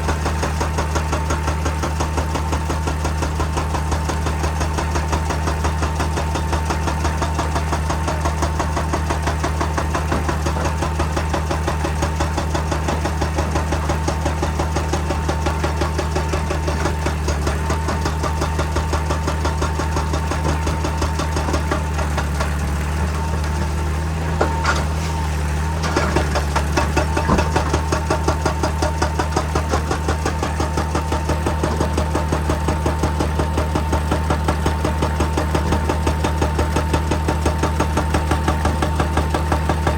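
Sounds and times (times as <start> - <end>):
excavator diesel engine running: 0.0 - 39.9
sharp knocks: 25.8 - 28.8.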